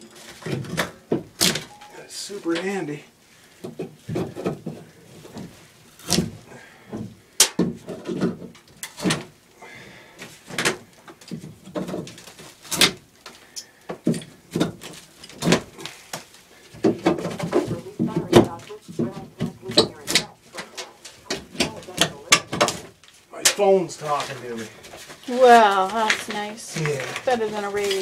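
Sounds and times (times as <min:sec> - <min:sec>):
sharp knocks and clunks: 0:03.6 - 0:09.3, 0:13.9 - 0:15.8, 0:16.8 - 0:23.6.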